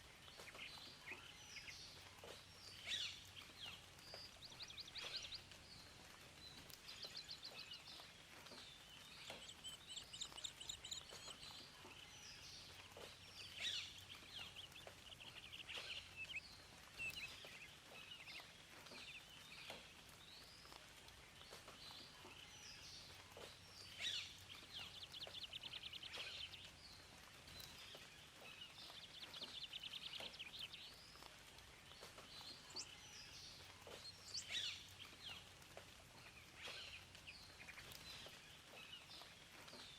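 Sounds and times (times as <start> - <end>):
faint steady hiss: 0.0 - 39.9
songbirds singing and chirping: 0.0 - 39.9.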